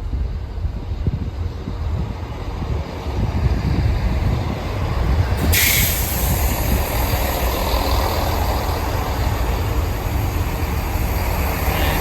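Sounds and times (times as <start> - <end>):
diesel engines idling: 4.0 - 12.0
high hiss: 5.4 - 8.2.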